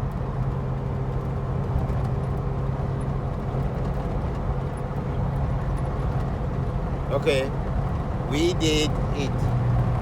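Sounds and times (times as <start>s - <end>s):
car engine drone: 0.0s - 10.0s
tyre and road noise: 0.0s - 10.0s.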